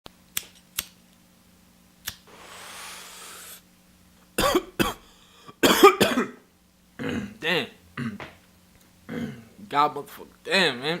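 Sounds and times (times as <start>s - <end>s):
man coughing hard: 4.4s - 6.4s, 7.0s - 8.4s, 9.1s - 9.5s.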